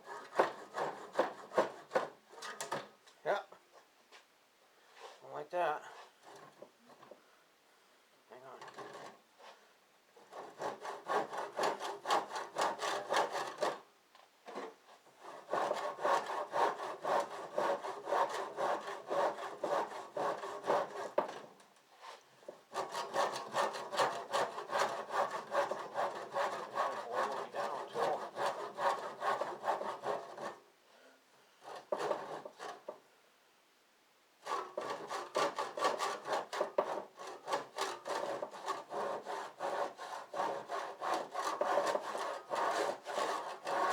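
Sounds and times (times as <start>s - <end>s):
handsaw cutting: 0.0s - 2.2s, 10.3s - 13.8s, 15.2s - 21.5s, 22.7s - 30.6s, 31.6s - 32.9s, 34.4s - 43.9s.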